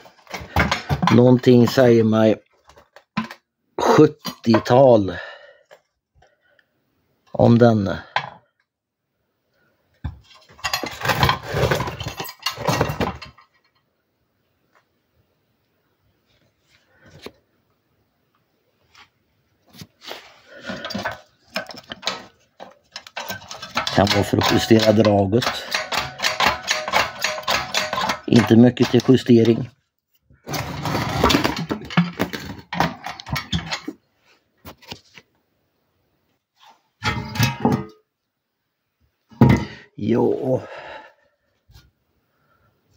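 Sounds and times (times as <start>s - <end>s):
metal clattering and scraping: 0.0s - 2.1s, 10.3s - 13.8s, 20.1s - 29.7s, 30.4s - 34.1s, 36.6s - 38.0s.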